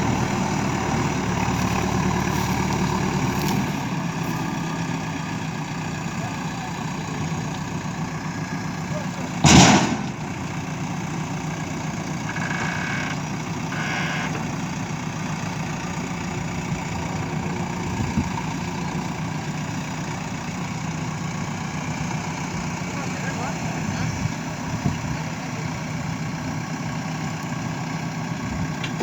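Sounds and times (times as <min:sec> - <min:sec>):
diesel engine idling: 0:00.0 - 0:29.0
loud metal clank: 0:09.4 - 0:10.3.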